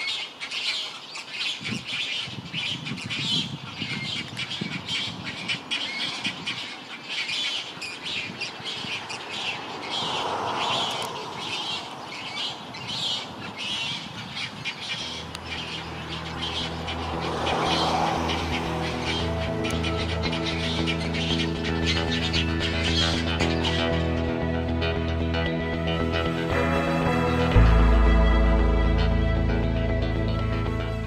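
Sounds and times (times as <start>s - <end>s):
birds squawking and chirping: 0.0s - 27.4s
music: 15.3s - 31.0s.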